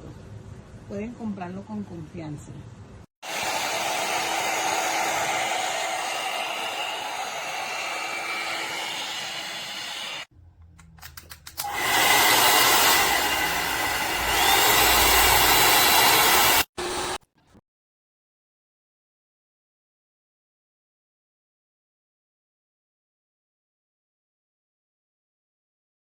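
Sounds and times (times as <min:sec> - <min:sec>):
hair dryer blowing: 0:03.2 - 0:10.3, 0:11.6 - 0:17.2.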